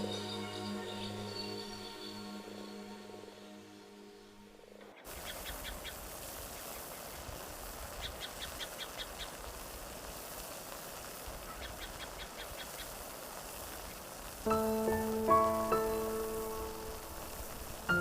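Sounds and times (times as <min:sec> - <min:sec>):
soft music: 0:00.0 - 0:04.8, 0:14.5 - 0:18.0
steady outdoor hiss: 0:00.0 - 0:18.0.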